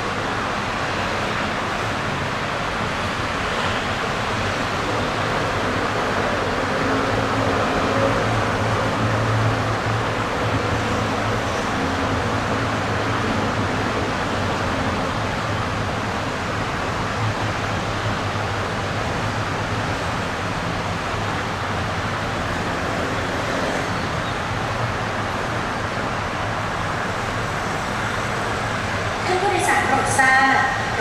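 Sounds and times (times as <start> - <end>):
machinery hum: 4.9 - 21.4.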